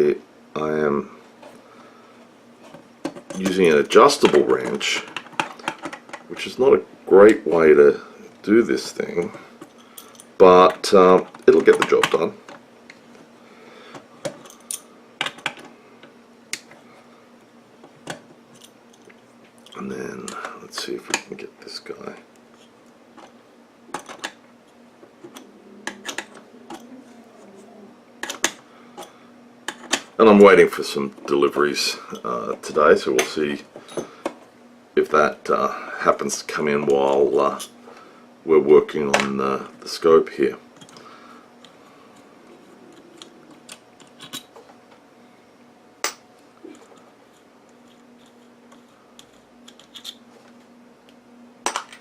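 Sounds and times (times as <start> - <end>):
faint steady hum: 0.0 - 52.0
hand tools and metal parts clicking: 25.2 - 27.0, 42.9 - 44.5, 47.8 - 50.2.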